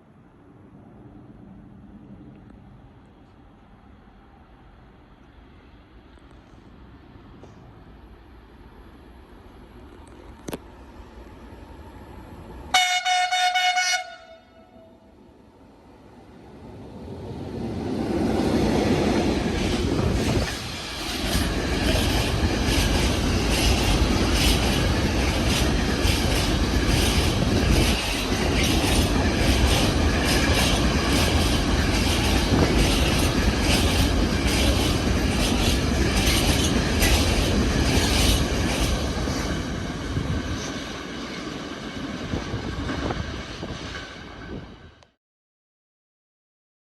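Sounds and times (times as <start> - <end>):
train wheels rumbling on rails: 16.2 - 45.1.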